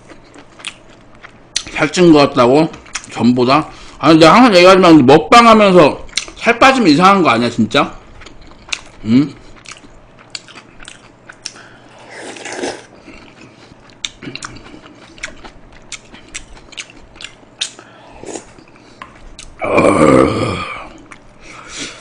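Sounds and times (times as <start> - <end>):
chewing with wet mouth clicks: 0.0 - 1.8, 2.7 - 3.2, 6.1 - 6.4, 8.1 - 11.7, 13.0 - 17.8, 18.4 - 19.6, 21.0 - 21.3.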